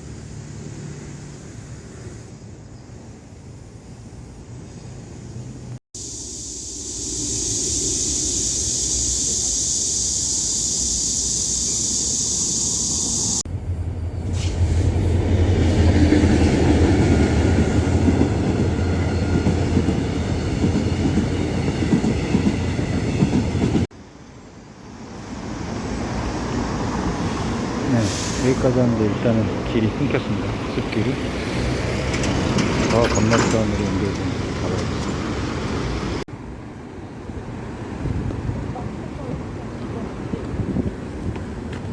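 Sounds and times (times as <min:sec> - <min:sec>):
train rumbling past: 0:00.0 - 0:41.9
steady high hiss: 0:06.0 - 0:13.4.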